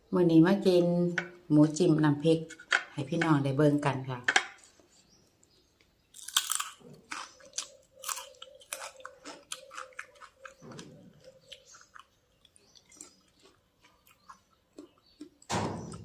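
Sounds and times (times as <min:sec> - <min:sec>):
chewing and crunching food: 0:04.4 - 0:16.0.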